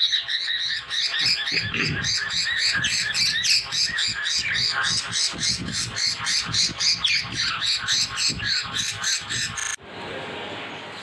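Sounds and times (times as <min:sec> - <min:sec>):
budgerigars chattering: 0:00.0 - 0:09.8.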